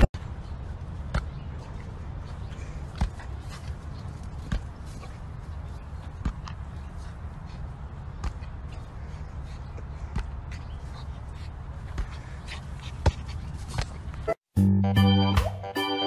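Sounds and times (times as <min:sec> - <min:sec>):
organ music: 0:14.6 - 0:16.0.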